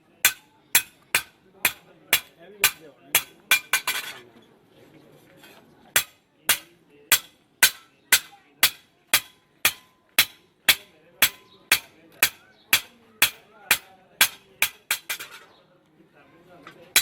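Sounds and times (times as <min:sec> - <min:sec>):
hand hammer striking metal: 0:00.2 - 0:04.0, 0:06.0 - 0:15.4.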